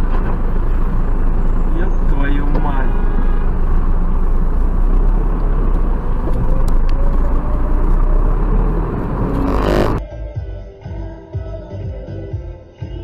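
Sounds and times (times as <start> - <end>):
car engine rumble inside cabin: 0.0 - 10.0
road noise: 0.0 - 10.0
music: 10.0 - 13.0.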